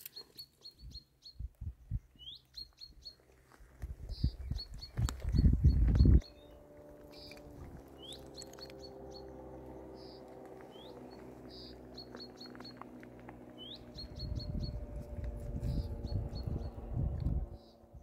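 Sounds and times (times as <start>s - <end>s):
small bird singing: 0.0s - 3.3s, 4.0s - 18.0s
low rumble: 3.8s - 18.0s.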